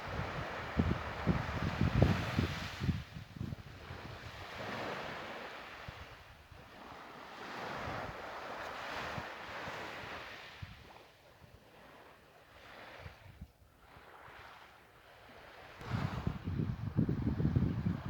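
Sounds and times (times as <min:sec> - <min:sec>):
wind buffeting microphone: 0:00.0 - 0:05.2, 0:15.8 - 0:18.0
waves washing in: 0:00.0 - 0:18.0.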